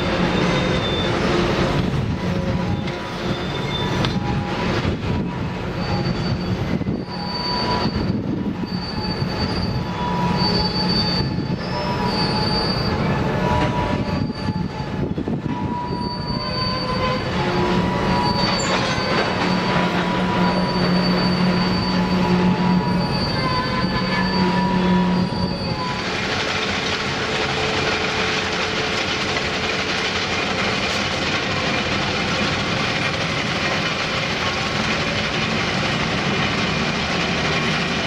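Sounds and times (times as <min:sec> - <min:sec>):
train rumble: 0:00.0 - 0:38.0
train wheels squealing on rails: 0:00.0 - 0:38.0.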